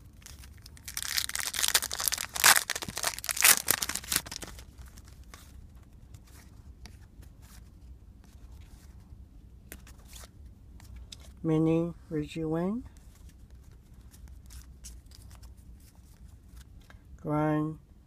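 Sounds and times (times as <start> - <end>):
foil wrapper tearing and crinkling: 0.0 - 5.1
cards rustling and clicking: 0.0 - 8.9, 9.6 - 11.4, 13.0 - 17.0.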